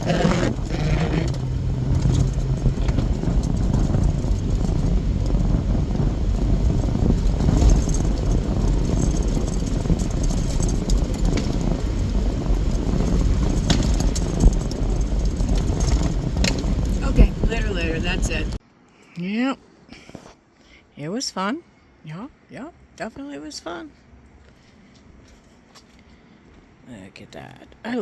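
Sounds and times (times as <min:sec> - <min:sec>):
vehicle engine and road rumble: 0:00.0 - 0:18.8, 0:21.8 - 0:28.0.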